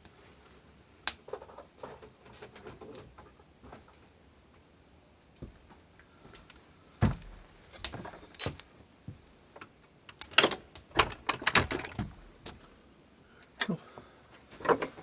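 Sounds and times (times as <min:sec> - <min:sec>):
heavy thump: 0:07.0 - 0:07.5.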